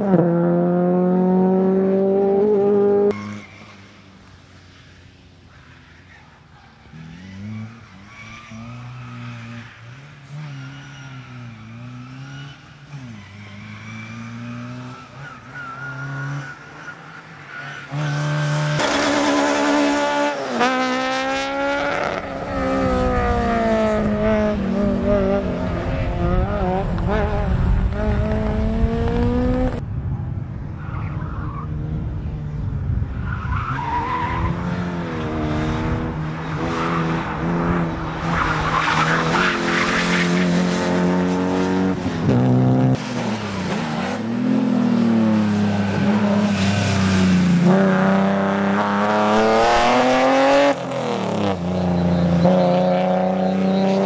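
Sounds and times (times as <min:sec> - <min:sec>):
tyre squeal: 0:03.1 - 0:04.0, 0:04.8 - 0:19.8
racing car engine revving: 0:17.9 - 0:29.8, 0:33.8 - 0:54.0.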